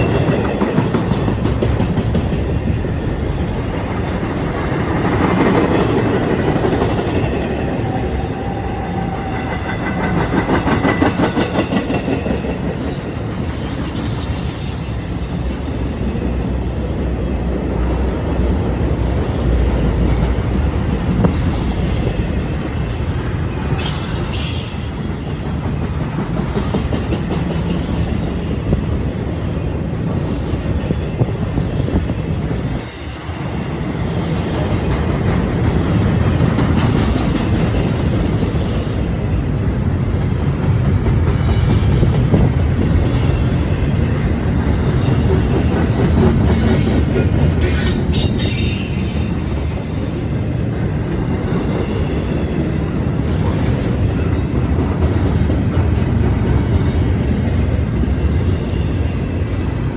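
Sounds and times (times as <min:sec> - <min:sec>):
clickety-clack over rail joints: 0:00.0 - 0:59.9
train wheels rumbling on rails: 0:00.0 - 0:59.9
high-pitched wheel squeals: 0:12.9 - 0:16.1, 0:23.8 - 0:25.6, 0:47.6 - 0:50.2.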